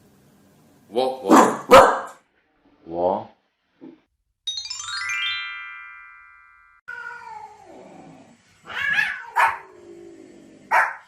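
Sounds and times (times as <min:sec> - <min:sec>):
dog barking: 0:01.3 - 0:02.2, 0:09.0 - 0:09.7, 0:10.7 - 0:11.0
chime-like tone: 0:04.5 - 0:06.8
dog whining: 0:08.7 - 0:09.8.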